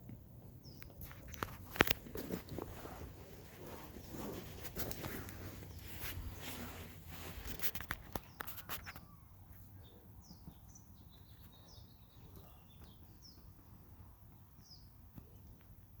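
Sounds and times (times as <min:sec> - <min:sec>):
bird chirping: 0:00.6 - 0:01.3, 0:07.5 - 0:13.7, 0:14.6 - 0:15.0
clicks and rustling: 0:00.8 - 0:09.1.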